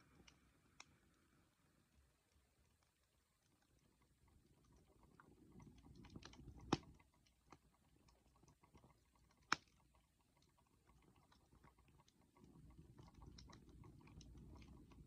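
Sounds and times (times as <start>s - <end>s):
burning wood popping: 4.7s - 15.0s.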